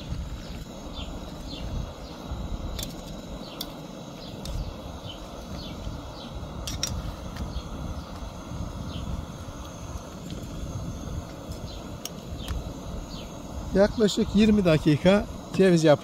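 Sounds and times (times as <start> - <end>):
small bird chirping: 0.0 - 9.2, 11.5 - 14.5.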